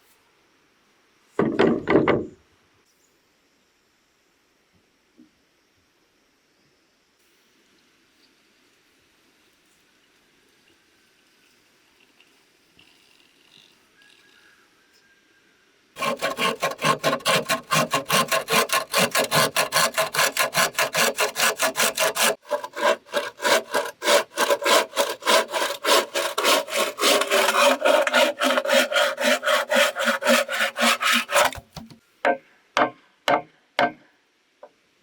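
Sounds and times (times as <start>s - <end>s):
hand saw cutting bamboo: 16.0s - 32.0s.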